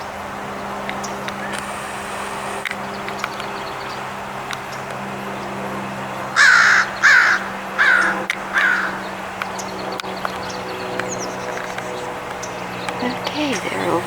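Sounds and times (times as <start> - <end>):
steady low hum: 0.0 - 14.0
bird loud calls: 6.4 - 14.0.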